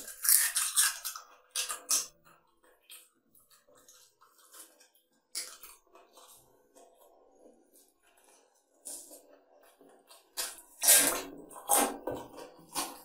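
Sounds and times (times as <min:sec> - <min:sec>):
wet chewing and lip smacking: 0:00.0 - 0:06.4.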